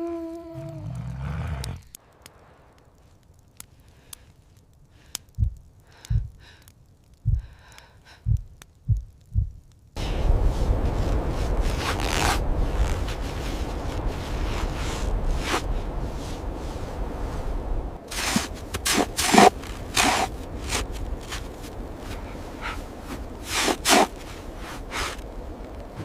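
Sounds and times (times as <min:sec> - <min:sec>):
soft low thuds: 0:05.3 - 0:06.4, 0:07.2 - 0:07.6, 0:08.2 - 0:11.3
loud blizzard wind: 0:10.0 - 0:26.0.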